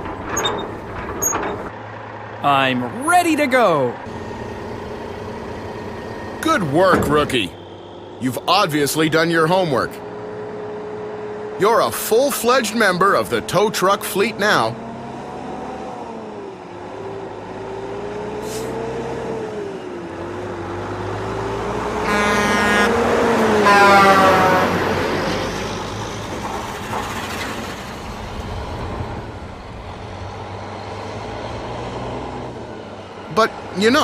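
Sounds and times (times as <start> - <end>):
heavy truck engine running: 0.0 - 34.0
truck horn blasts: 22.0 - 25.0.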